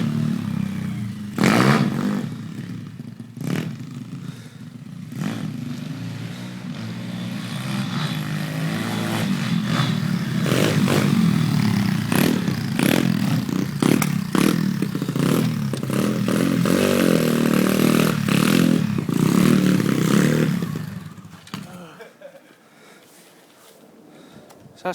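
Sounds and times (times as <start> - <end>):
pit bike engine revving: 0.0 - 22.1
sharp cracks and clatter: 12.0 - 16.8.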